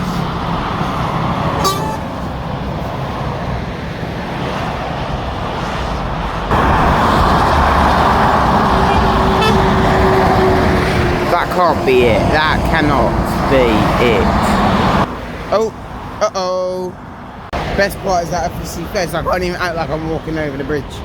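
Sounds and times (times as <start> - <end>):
heavy vehicle passing close: 0.0 - 16.2
motorway traffic rushing: 0.0 - 21.0.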